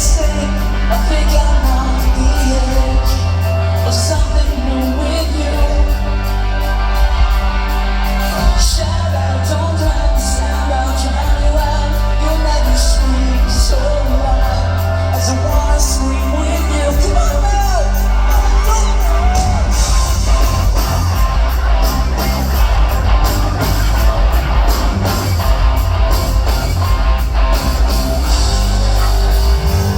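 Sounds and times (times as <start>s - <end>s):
person singing: 0.0s - 21.0s
live rock band playing: 0.0s - 29.9s.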